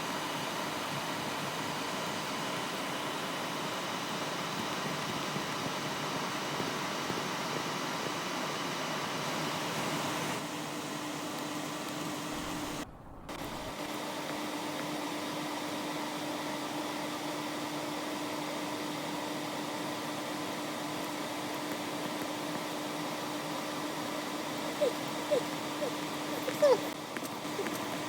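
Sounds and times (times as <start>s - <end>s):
low hum: 12.3s - 13.9s.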